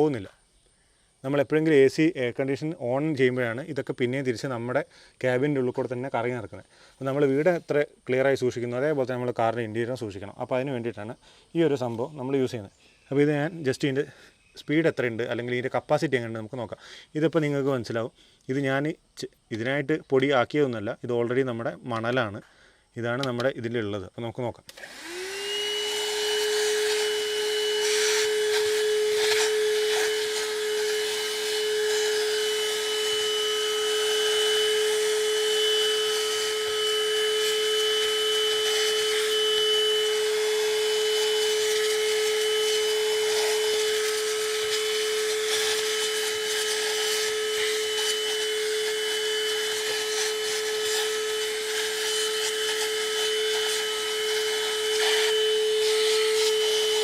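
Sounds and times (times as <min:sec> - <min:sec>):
handheld vacuum cleaner whine: 0:24.7 - 0:57.0.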